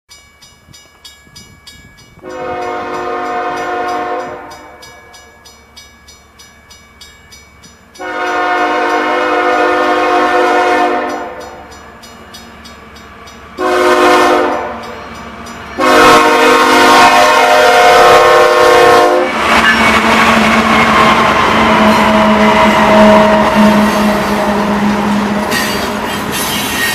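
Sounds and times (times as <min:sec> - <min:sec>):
crossing bell dinging: 0:00.1 - 0:09.3, 0:10.5 - 0:19.0, 0:19.6 - 0:26.9
locomotive horn blasts: 0:02.2 - 0:04.8, 0:08.0 - 0:11.6, 0:13.6 - 0:14.9, 0:15.8 - 0:25.9
locomotives rumbling past: 0:07.6 - 0:26.9.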